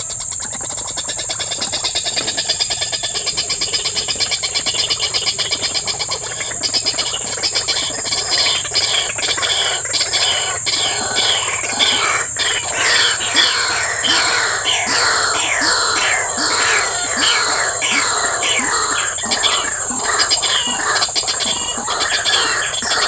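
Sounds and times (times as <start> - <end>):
pulsing animal calls: 0.0 - 23.0
sharp irregular animal calls: 0.0 - 23.0.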